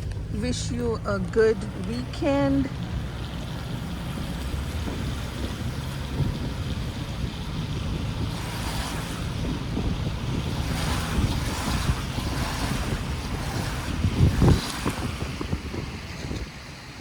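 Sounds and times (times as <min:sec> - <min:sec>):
wind buffeting microphone: 0:00.0 - 0:17.0
rain hissing: 0:02.7 - 0:16.2.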